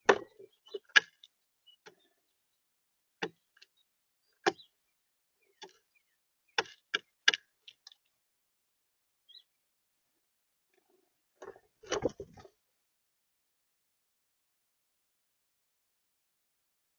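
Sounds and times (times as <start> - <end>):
birds pecking on feeder: 0.0 - 2.2, 5.4 - 8.1.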